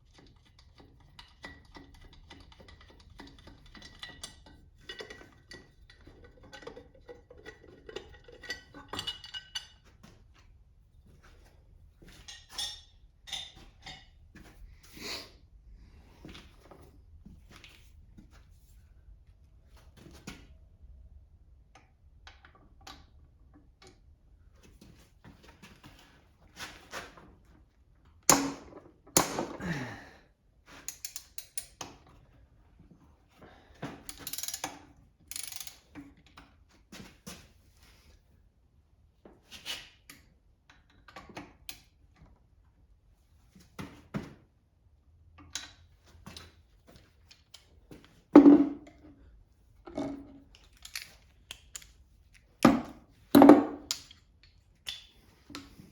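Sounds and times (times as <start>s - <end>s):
metal tools clinking: 12.2s - 14.2s.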